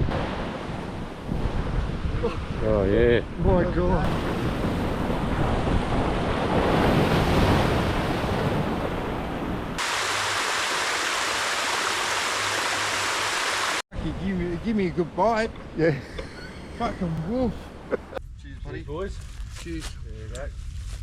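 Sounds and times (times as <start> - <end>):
ocean surf washing on beach: 4.0 - 13.8.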